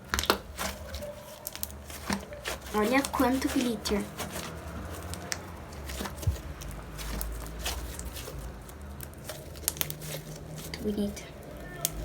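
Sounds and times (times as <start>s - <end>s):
slime squishing and clicking: 0.0s - 11.0s.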